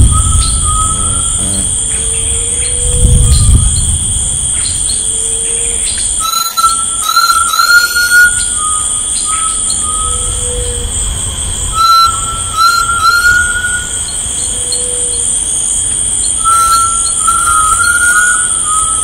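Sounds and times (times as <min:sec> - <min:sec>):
short low whistles: 0:00.0 - 0:02.0, 0:16.4 - 0:19.0
low rumble: 0:00.0 - 0:06.2
rising whistled notes: 0:00.0 - 0:10.8, 0:11.7 - 0:14.2, 0:16.2 - 0:19.0
bird calls: 0:00.0 - 0:19.0
high insect drone: 0:00.0 - 0:19.0.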